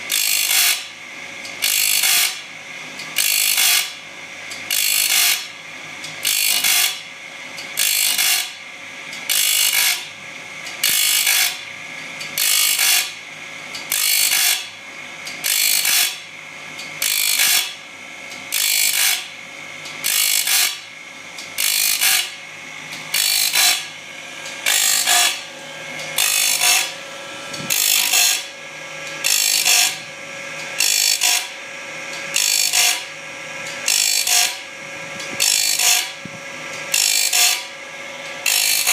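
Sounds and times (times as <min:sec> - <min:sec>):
grinding wheel rasping hiss: 0:01.6 - 0:02.4, 0:03.1 - 0:03.9, 0:04.7 - 0:05.5, 0:06.2 - 0:07.0, 0:07.8 - 0:08.5, 0:10.8 - 0:11.6, 0:12.4 - 0:13.1, 0:13.9 - 0:14.7, 0:15.4 - 0:16.2, 0:17.0 - 0:17.7, 0:18.5 - 0:20.8, 0:21.5 - 0:38.9
machine humming: 0:09.5 - 0:38.9.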